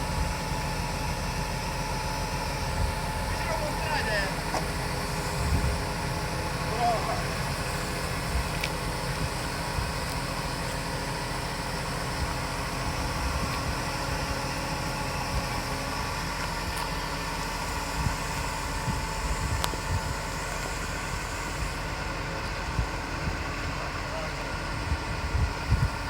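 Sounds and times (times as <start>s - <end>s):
engine rumbling steadily: 0.0s - 26.0s.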